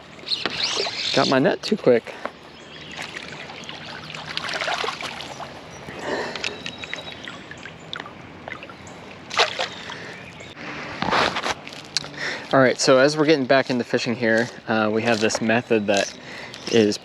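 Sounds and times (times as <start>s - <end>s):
water splashing and trickling: 2.8s - 10.6s.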